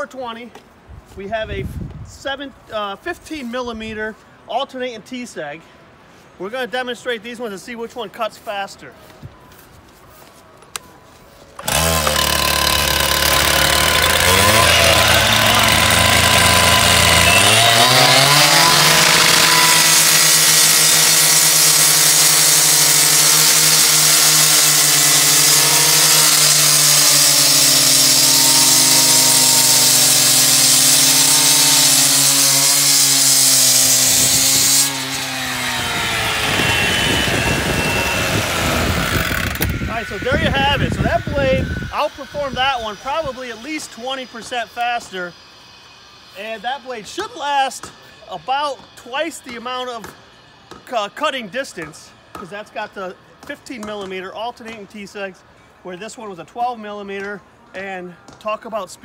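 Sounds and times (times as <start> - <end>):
cut-off saw engine revving: 11.6 - 47.9
blade grinding through masonry: 11.6 - 53.0.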